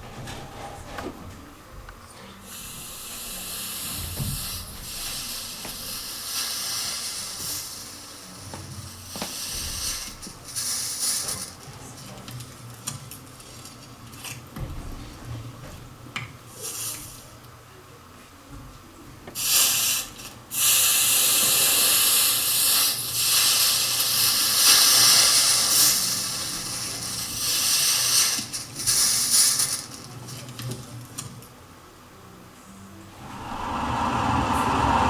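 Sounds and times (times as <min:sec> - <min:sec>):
drawn-out hissing: 0:33.1 - 0:35.0.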